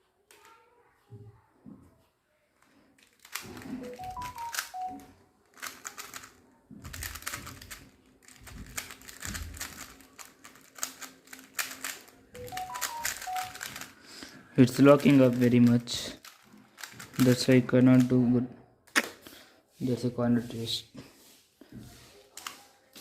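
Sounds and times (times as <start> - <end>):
plastic puzzle cube clicking: 3.0 - 4.7, 5.5 - 13.9, 14.8 - 18.1
short stepped electronic beeps: 3.9 - 5.0, 12.4 - 13.6.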